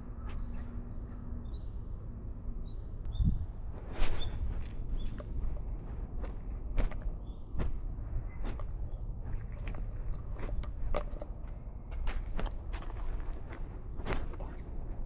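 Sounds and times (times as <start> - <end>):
low steady rumble: 0.0 - 15.0
crunching steps on ground: 6.2 - 11.2.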